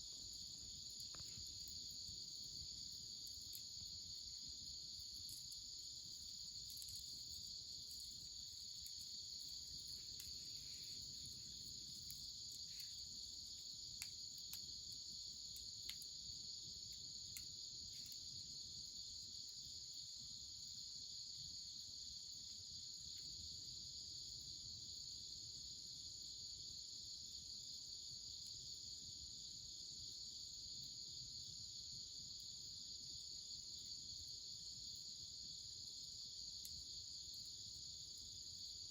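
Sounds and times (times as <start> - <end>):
insects chirring: 0.0 - 23.4.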